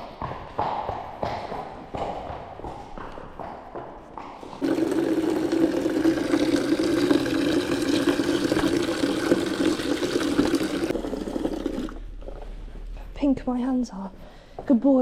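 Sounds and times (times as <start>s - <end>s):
tap water rushing into bucket: 4.6s - 12.1s.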